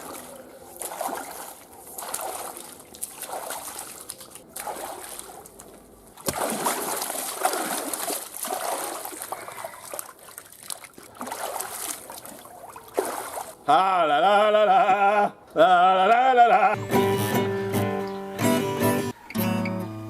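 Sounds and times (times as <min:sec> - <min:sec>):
water splashing in a bath: 0:00.0 - 0:13.6.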